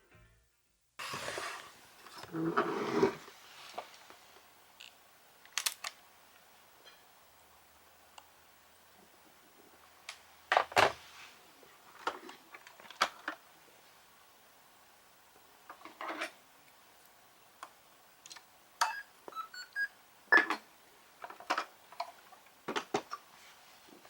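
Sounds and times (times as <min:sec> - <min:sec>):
faint beeps: 0:18.8 - 0:20.0.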